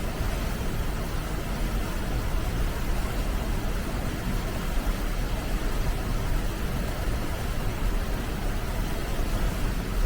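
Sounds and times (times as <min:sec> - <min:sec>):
flowing water rushing: 0:00.0 - 0:10.0.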